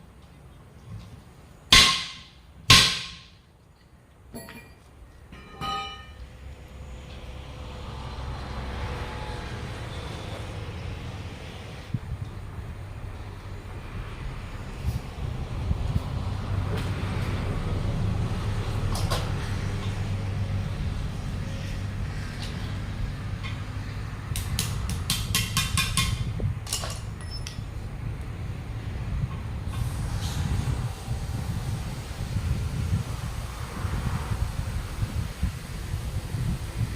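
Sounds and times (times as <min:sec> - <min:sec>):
sharp knocks: 0:01.7 - 0:03.4
ringing metallic clanks: 0:04.3 - 0:06.3
low engine rumble: 0:26.0 - 0:36.9.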